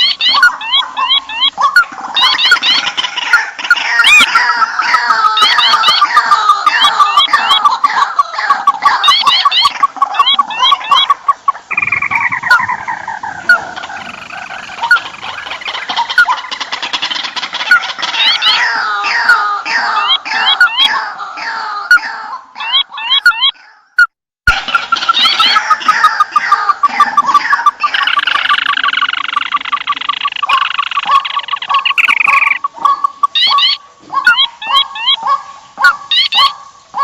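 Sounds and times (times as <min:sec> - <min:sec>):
fast rattling bird chatter: 0:00.0 - 0:21.0, 0:24.5 - 0:35.4
squealing bird calls: 0:00.0 - 0:37.0
upward-flicking bird notes: 0:27.2 - 0:33.8.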